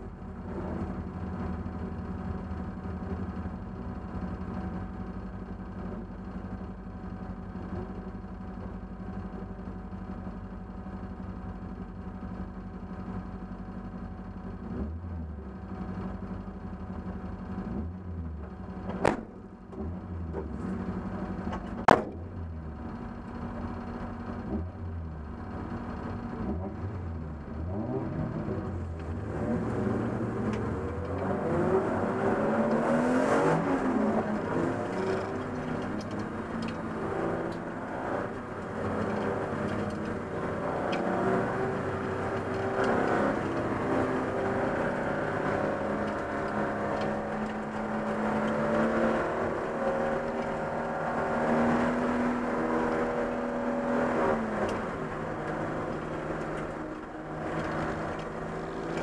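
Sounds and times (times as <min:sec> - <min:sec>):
racing car engine revving: 0:24.3 - 0:59.0.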